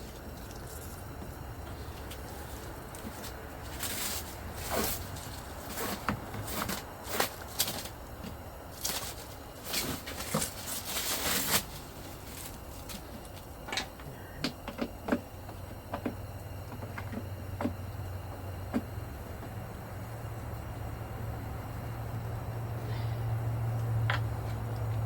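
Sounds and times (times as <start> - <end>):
plastic rustling and crinkling: 1.8 - 13.9.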